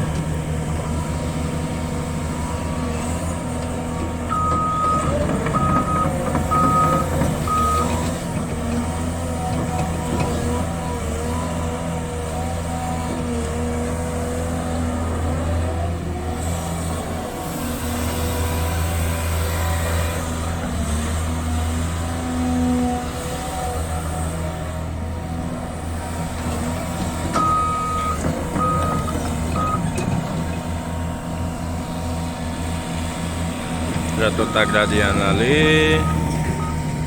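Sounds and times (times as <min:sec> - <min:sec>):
diesel engine running: 0:00.0 - 0:37.0
reversing alarm beeps: 0:04.3 - 0:08.0, 0:27.4 - 0:30.0, 0:34.2 - 0:37.0.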